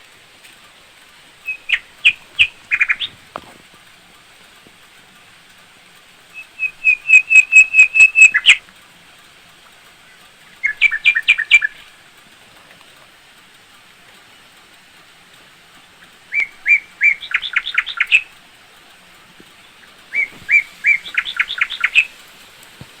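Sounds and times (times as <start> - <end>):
songbird chirping: 0.5 - 4.0, 6.3 - 8.6, 10.0 - 12.0, 15.8 - 23.0.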